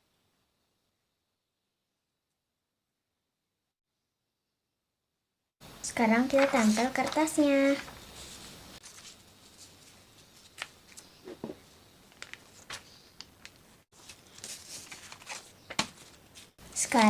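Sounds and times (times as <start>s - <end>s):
paper rustling and tapping: 6.2s - 8.0s, 9.8s - 17.0s.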